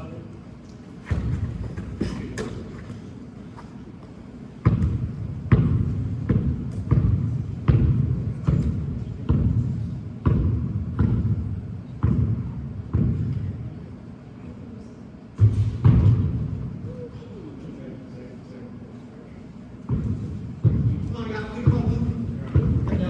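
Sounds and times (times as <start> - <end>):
basketball dribbling on a court: 4.6 - 13.5, 19.8 - 23.0.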